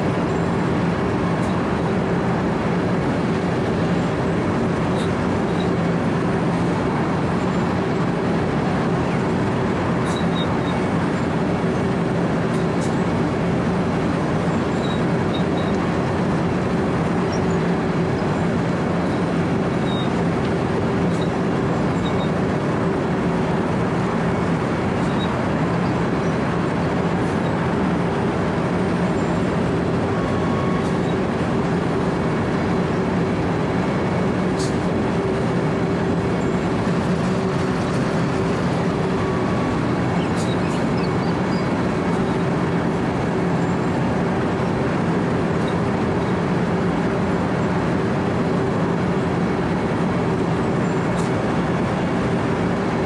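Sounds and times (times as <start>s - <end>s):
milling machine droning: 0.0s - 53.0s.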